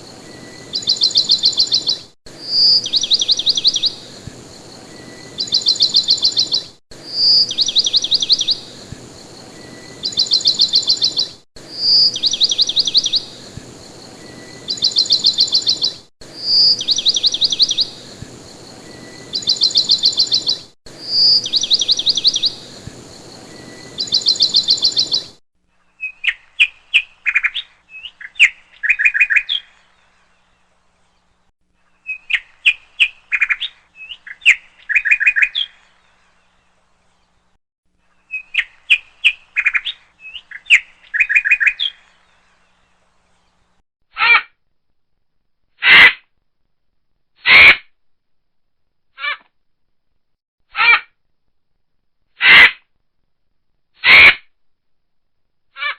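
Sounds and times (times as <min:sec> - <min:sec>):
birds chirping: 0:00.0 - 0:31.4, 0:32.0 - 0:37.4, 0:38.2 - 0:43.7
steady hiss: 0:02.3 - 0:06.4, 0:07.0 - 0:25.2.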